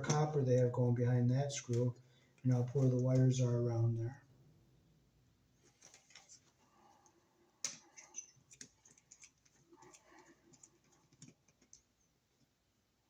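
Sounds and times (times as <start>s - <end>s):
plastic and metal parts handled: 5.6s - 6.6s.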